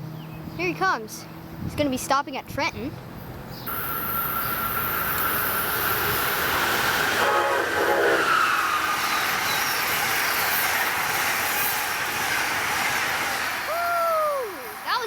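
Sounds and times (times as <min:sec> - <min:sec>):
train wheels rushing on rails: 0:03.7 - 0:15.0
train horn: 0:03.8 - 0:09.2.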